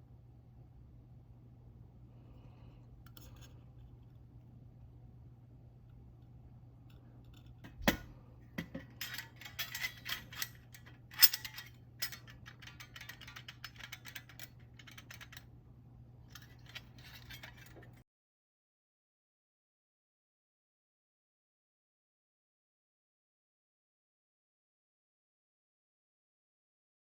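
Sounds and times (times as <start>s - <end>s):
low steady hum: 0.0s - 18.0s
metal parts clinking and rattling: 7.3s - 15.5s, 16.3s - 18.0s.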